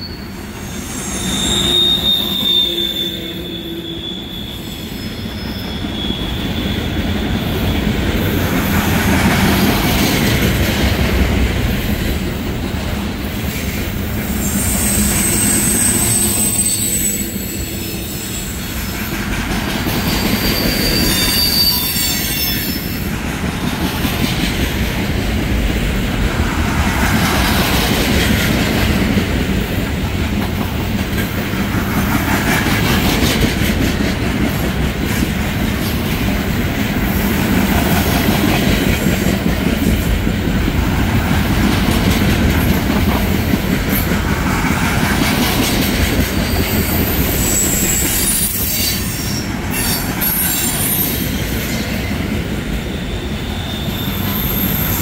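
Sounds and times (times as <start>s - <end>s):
high wheel squeal: 0.0s - 7.8s, 14.3s - 19.0s, 20.0s - 23.1s, 46.4s - 52.0s, 52.8s - 55.0s
train wheels rumbling on rail: 0.0s - 55.0s
rhythmic clickety-clack: 26.7s - 48.2s.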